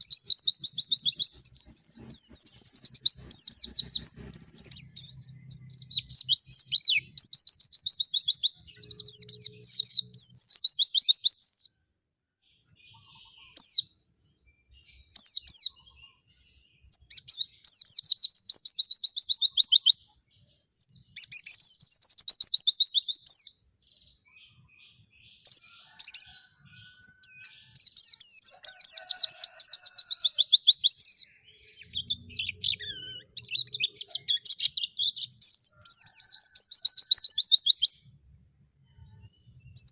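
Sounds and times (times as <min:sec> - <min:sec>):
bird singing rapid high notes: 0:00.0 - 0:11.6.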